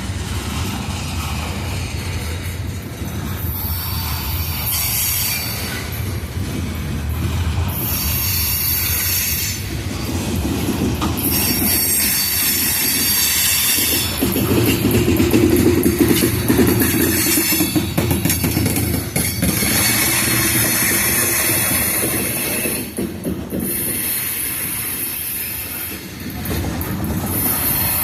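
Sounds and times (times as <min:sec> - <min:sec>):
train wheels rumbling on rails: 0:00.0 - 0:28.0
high-pitched wheel squeal: 0:11.2 - 0:14.3.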